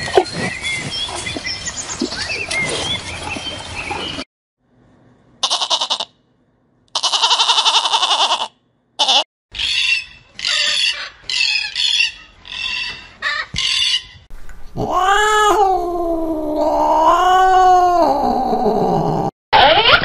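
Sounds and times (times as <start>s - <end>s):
goat kid bleating: 5.4s - 6.1s, 6.9s - 9.2s.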